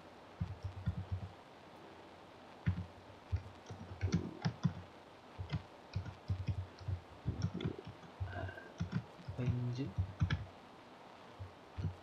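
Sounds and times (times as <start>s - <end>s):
computer keyboard typing: 0.4s - 1.3s, 2.6s - 4.8s, 5.4s - 10.4s.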